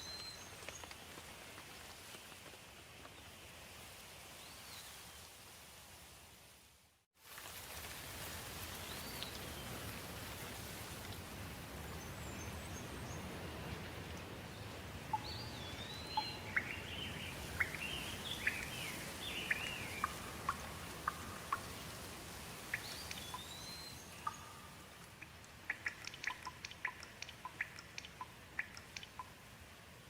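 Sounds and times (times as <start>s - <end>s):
steady rain: 0.0s - 30.0s
bird singing: 14.5s - 21.6s, 22.7s - 24.9s.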